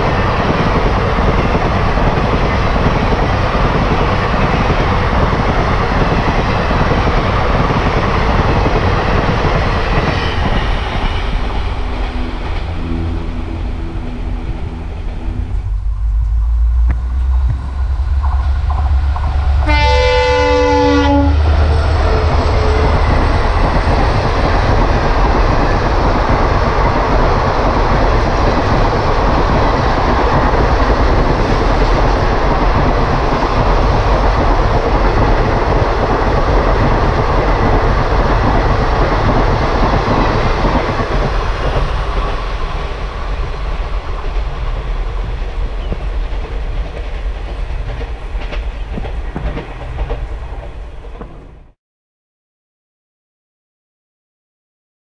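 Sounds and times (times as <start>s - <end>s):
train wheels clickety-clack: 0.0s - 12.8s, 16.9s - 51.8s
diesel locomotive horn: 11.8s - 18.6s, 19.4s - 23.2s.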